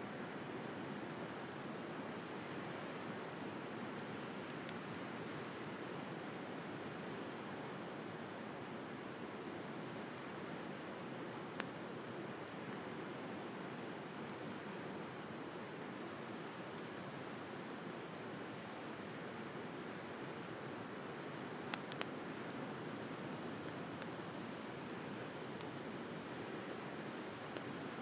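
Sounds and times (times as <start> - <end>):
bonfire crackling and popping: 0.2 - 8.4, 10.1 - 13.0, 18.6 - 28.0.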